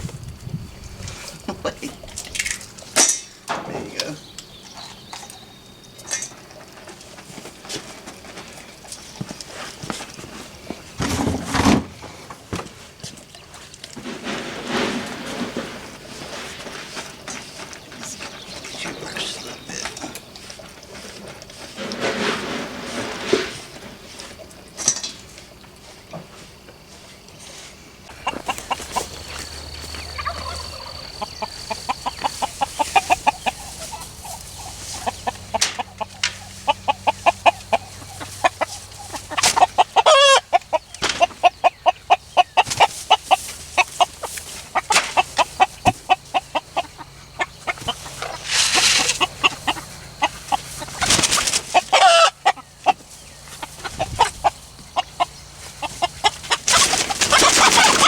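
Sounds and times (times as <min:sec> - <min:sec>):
flock of chickens clucking: 0:13.2 - 0:58.0
drawn-out chicken calls: 0:13.3 - 0:58.0.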